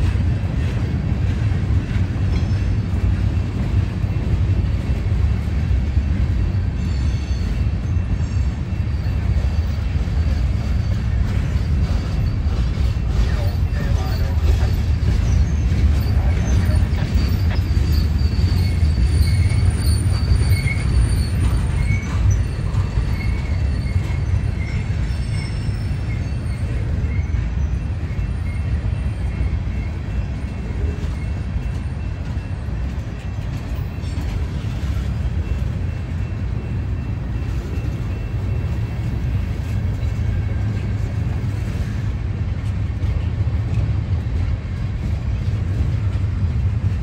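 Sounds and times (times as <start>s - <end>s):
freight train rumbling past: 0.0s - 47.0s
high wheel squeals: 6.2s - 42.0s.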